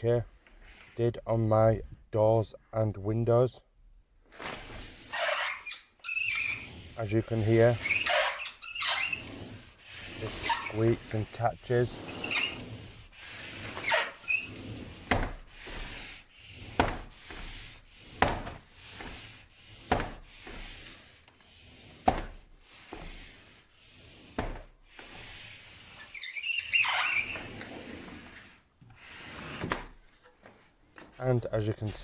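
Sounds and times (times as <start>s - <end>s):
door rubbing on frame: 4.4s - 30.2s
door squeak: 5.1s - 6.9s, 7.7s - 9.4s, 13.7s - 14.8s, 26.0s - 27.6s.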